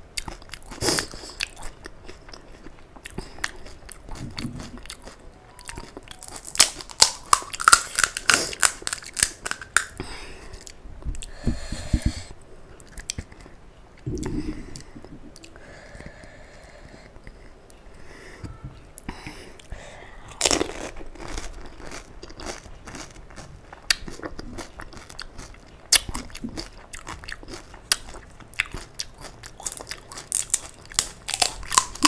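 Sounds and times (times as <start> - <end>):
chewing crisp shells: 0.2 - 10.0, 20.3 - 32.0.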